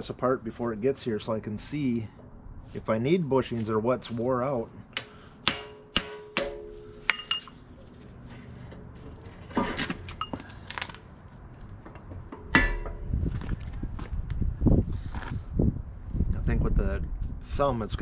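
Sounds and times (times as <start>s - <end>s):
metal tools clinking against steel: 5.0s - 7.6s.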